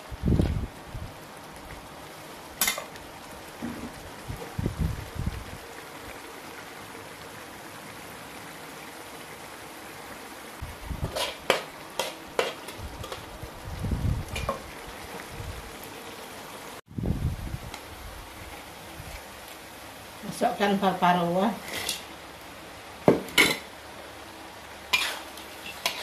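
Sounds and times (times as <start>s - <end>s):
sauce sizzling in a wok: 0.0s - 26.0s
spatula scraping a pan: 11.1s - 13.3s, 24.9s - 26.0s.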